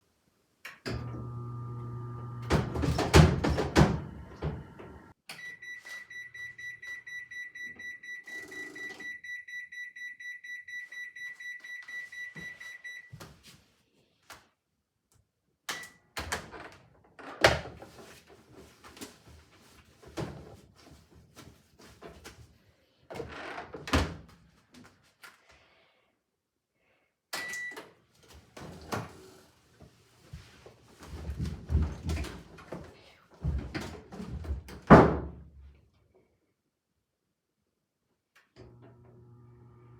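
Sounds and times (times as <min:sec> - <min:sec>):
washing machine lid and drum clunks: 0:02.4 - 0:05.0
washing machine rapid high beeps: 0:05.4 - 0:13.1.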